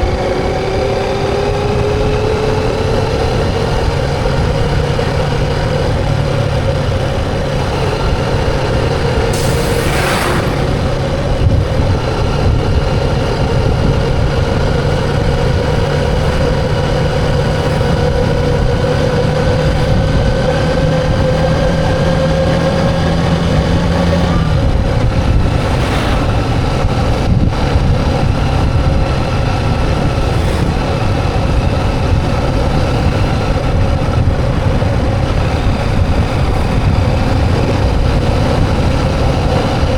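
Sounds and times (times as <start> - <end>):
motorcycle engine running: 0.0 - 39.9
road noise: 0.0 - 39.9
brief rushing bursts: 9.3 - 11.5.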